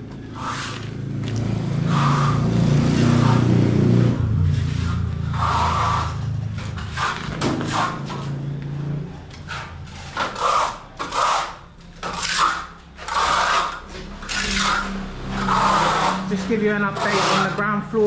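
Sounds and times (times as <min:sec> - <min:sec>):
scraping strokes on hard surface: 0:00.3 - 0:01.0, 0:04.4 - 0:08.5, 0:09.3 - 0:17.8.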